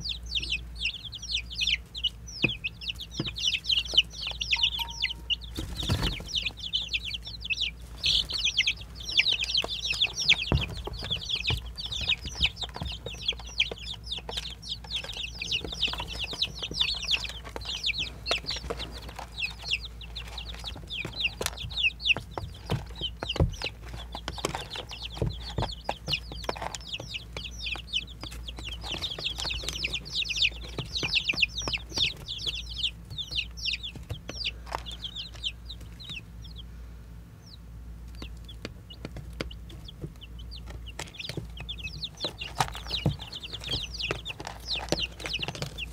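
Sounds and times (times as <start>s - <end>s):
baby chicks peeping: 0.0s - 45.9s.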